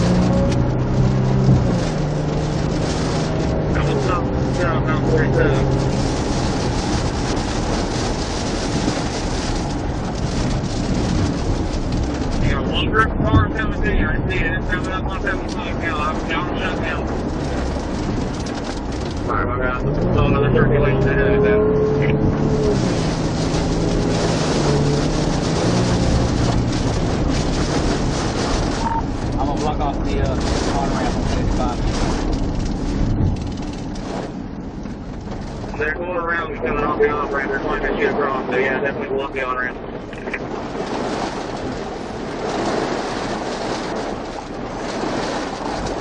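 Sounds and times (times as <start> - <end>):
low engine hum: 0.0 - 46.0
wind rushing on microphone: 0.0 - 46.0.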